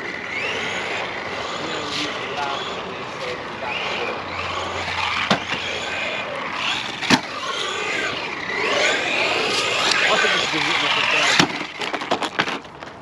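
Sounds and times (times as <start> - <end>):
electric motor whining: 0.0 - 12.6
toy truck hitting ground: 4.6 - 5.9, 6.6 - 7.8, 8.5 - 13.0.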